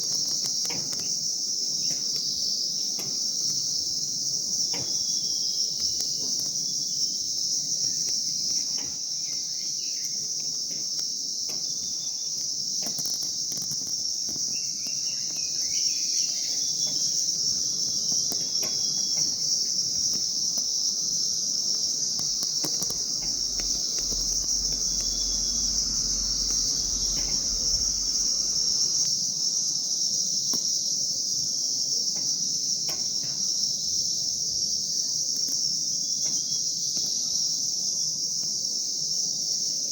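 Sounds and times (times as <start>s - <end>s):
high-pitched insect chorus: 0.0s - 39.9s
faint bird chirps: 4.8s - 10.5s.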